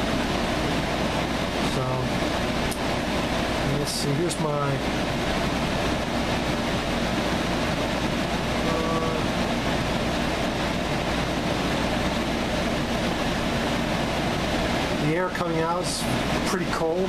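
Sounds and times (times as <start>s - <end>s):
air conditioner fan running: 0.0s - 17.0s
faint tone: 8.6s - 9.3s.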